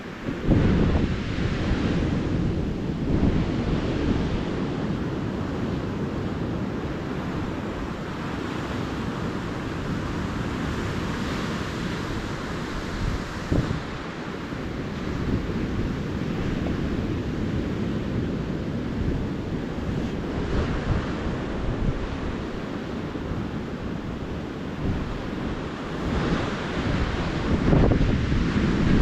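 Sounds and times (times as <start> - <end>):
ocean surf on a beach: 0.0 - 29.0.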